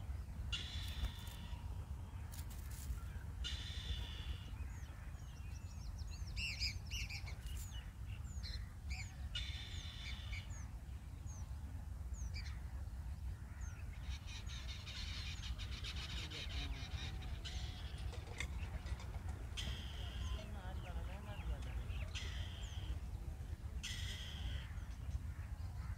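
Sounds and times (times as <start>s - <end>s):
buzzy rasping bird calls: 0.5s - 1.7s, 2.3s - 4.8s, 14.2s - 23.0s, 23.8s - 25.9s.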